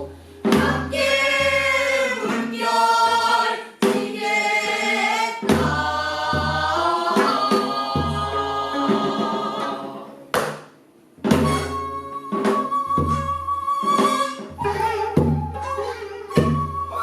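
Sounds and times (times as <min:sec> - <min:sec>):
voices singing together: 0:00.0 - 0:10.4
barrel drum strokes: 0:05.4 - 0:10.1.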